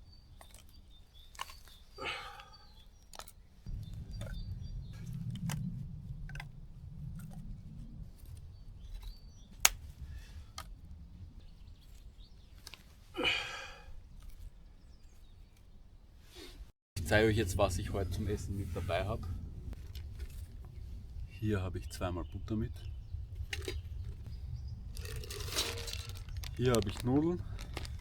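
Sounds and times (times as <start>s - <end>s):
low rumble: 3.7s - 9.4s, 17.0s - 28.0s
sharp clicks and snaps: 5.0s - 6.6s, 9.0s - 10.0s.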